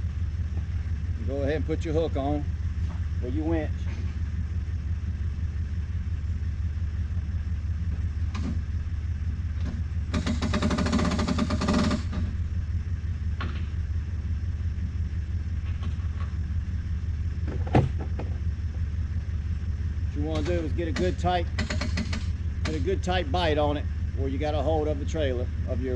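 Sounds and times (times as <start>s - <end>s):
engine idling: 0.0s - 25.9s
hand winch ratcheting: 10.1s - 12.2s, 20.3s - 22.8s.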